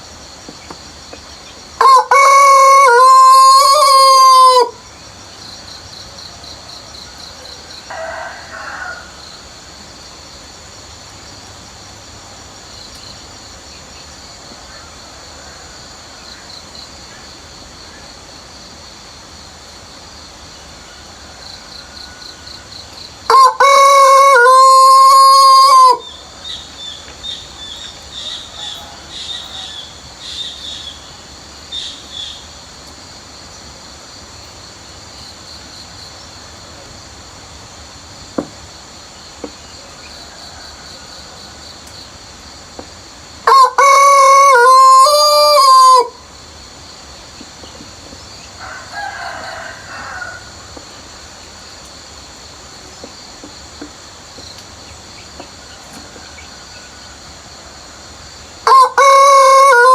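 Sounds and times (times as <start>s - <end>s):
insects buzzing: 0.0s - 59.9s
rooster crowing: 1.8s - 4.8s, 7.4s - 9.4s, 20.8s - 26.9s, 27.6s - 30.0s, 40.0s - 41.7s, 43.4s - 46.2s, 48.6s - 50.8s, 58.6s - 59.9s
small birds chirping: 26.0s - 32.5s.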